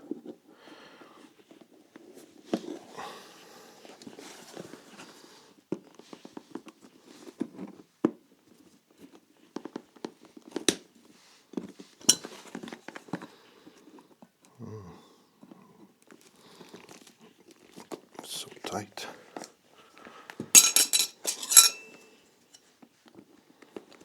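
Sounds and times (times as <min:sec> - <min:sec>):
hand tools clicking and scraping: 0:20.6 - 0:22.0.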